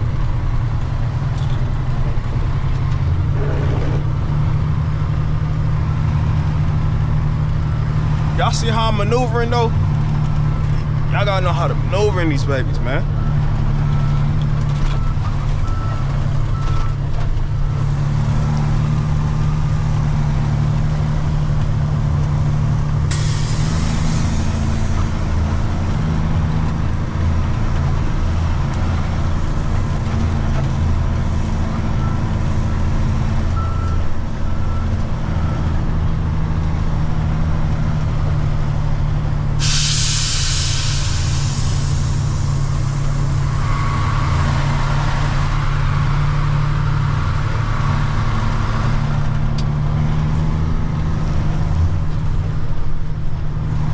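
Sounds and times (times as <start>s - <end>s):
diesel truck engine running: 0.0s - 53.9s
air brakes hissing: 23.0s - 26.9s, 39.6s - 48.6s.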